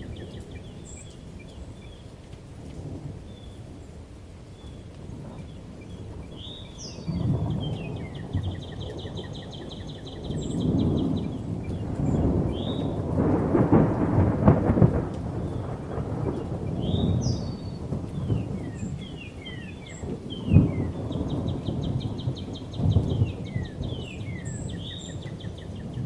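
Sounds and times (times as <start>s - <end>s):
birds chirping: 0.0s - 2.1s, 4.5s - 13.0s, 15.4s - 26.0s
steady rain: 0.0s - 26.0s
thunder rumbling and cracking: 5.0s - 26.0s.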